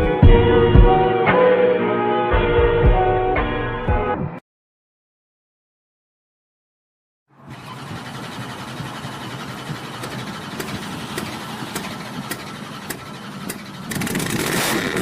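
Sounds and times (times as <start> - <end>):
engine idling: 7.3 - 15.0.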